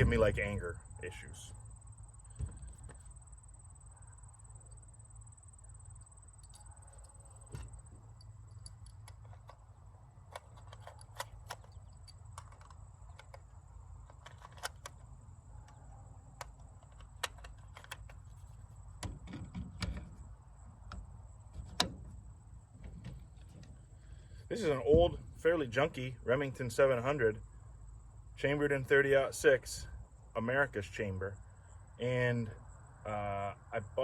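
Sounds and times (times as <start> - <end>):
steady low rumble: 0.0 - 34.0
metallic clicks of rifle handling: 5.9 - 18.4.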